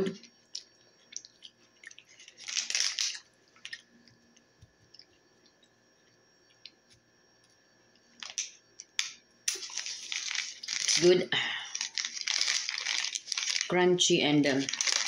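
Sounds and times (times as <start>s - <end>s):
granola bar being chewed: 0.1s - 7.6s, 9.5s - 11.1s, 11.7s - 13.7s, 14.6s - 15.0s.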